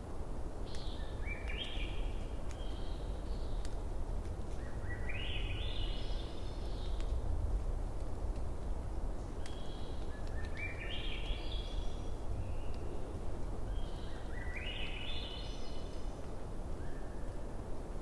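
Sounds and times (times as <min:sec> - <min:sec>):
fire crackles: 0:00.1 - 0:04.6, 0:06.4 - 0:11.2
bonfire burning: 0:02.4 - 0:04.6, 0:06.9 - 0:10.5.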